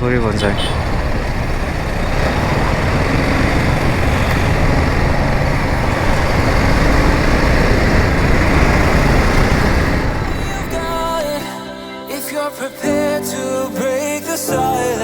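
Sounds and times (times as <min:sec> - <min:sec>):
motorcycle engine: 0:00.0 - 0:11.5
wind and road noise: 0:00.0 - 0:11.5.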